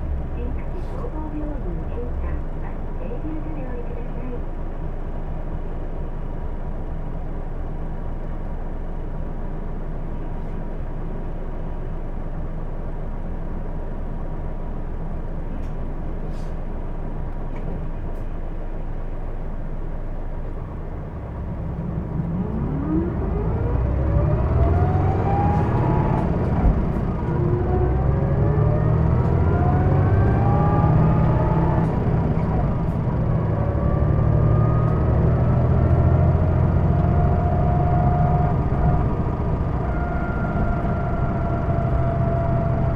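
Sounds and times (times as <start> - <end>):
bus diesel engine: 0.0 - 42.9
rising engine whine: 20.6 - 42.9.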